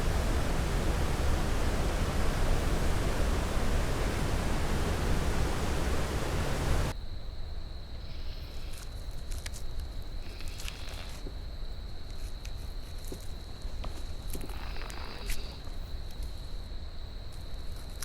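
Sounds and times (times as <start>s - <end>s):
full-range rushing noise: 0.0s - 6.9s.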